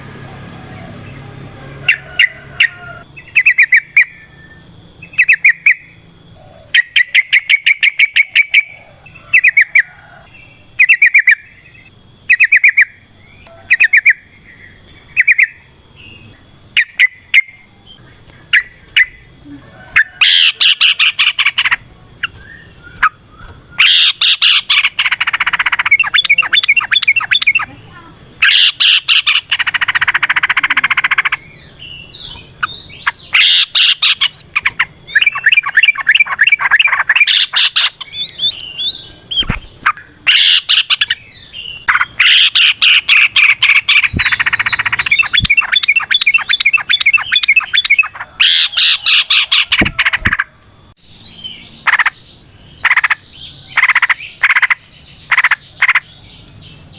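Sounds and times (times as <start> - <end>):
bird chattering song: 0.0 - 56.9.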